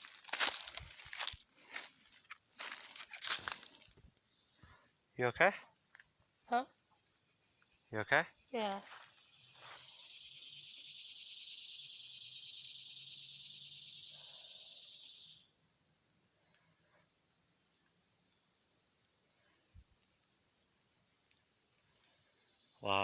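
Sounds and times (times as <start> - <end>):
pulsing high insect buzz: 0.0 - 4.4, 6.3 - 16.1
high-pitched insect trill: 0.0 - 23.0.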